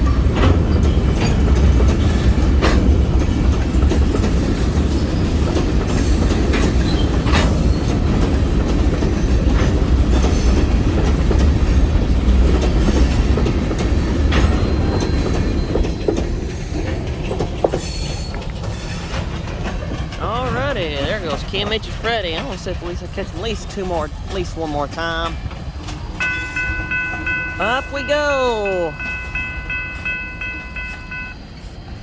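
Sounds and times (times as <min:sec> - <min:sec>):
freight train rumbling: 0:00.0 - 0:32.0
wheels clicking over rail joints: 0:00.0 - 0:32.0
high wheel squeal: 0:14.0 - 0:16.7, 0:17.7 - 0:19.2.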